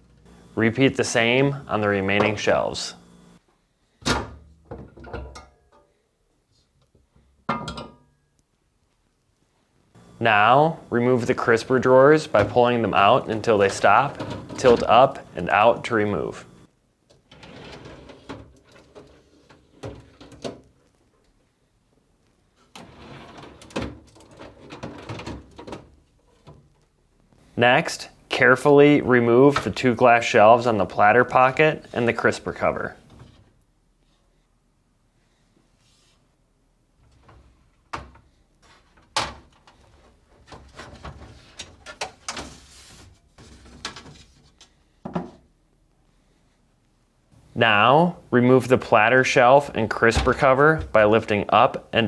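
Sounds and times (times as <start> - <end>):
plastic drawer sliding scrape: 13.4 - 15.3.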